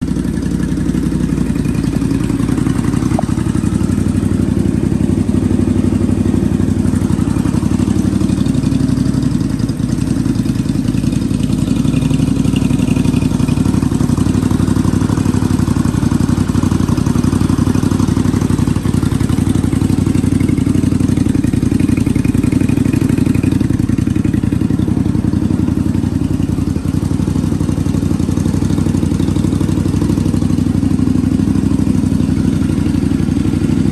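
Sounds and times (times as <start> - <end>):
motorcycle engine idling: 0.0 - 33.9.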